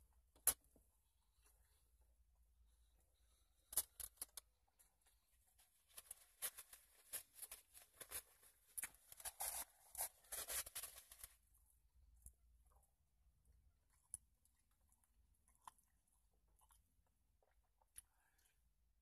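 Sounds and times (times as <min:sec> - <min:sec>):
crunchy sandwich chewing: 0:13.9 - 0:18.5.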